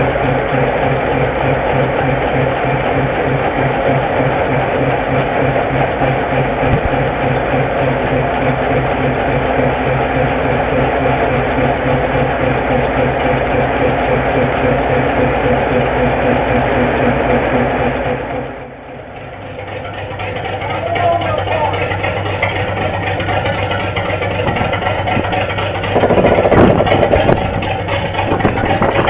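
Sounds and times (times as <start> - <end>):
locomotive diesel engine idling: 0.0 - 29.0.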